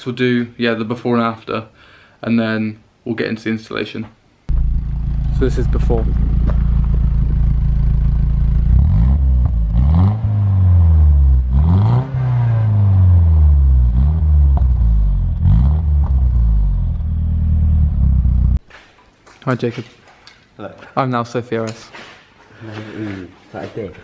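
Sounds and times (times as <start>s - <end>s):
car engine idling and revving: 4.5s - 18.6s.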